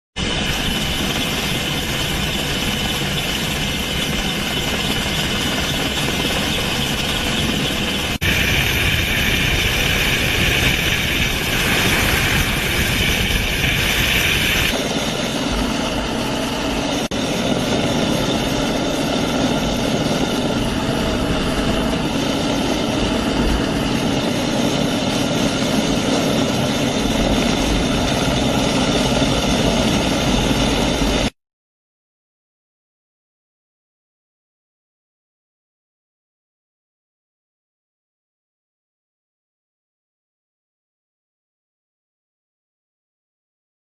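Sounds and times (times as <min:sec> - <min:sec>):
helicopter rotor and engine: 0:00.2 - 0:31.4.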